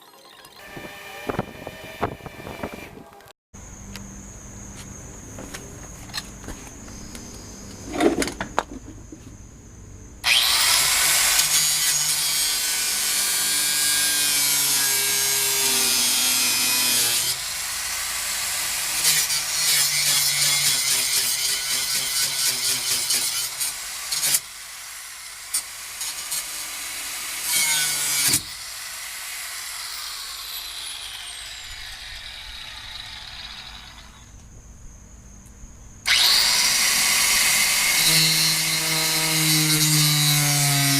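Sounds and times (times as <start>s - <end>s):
angle grinder under load: 10.2s - 34.4s, 36.1s - 40.9s.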